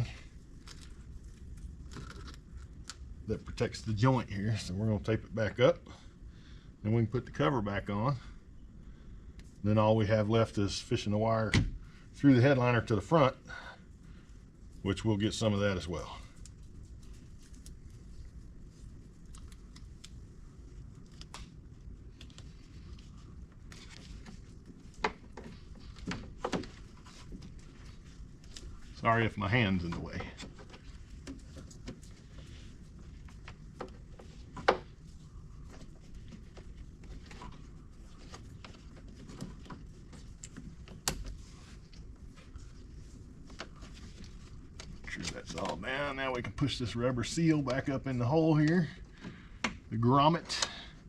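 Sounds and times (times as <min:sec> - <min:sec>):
low steady hum: 0:00.0 - 0:51.0
rubber rustling: 0:13.9 - 0:50.4.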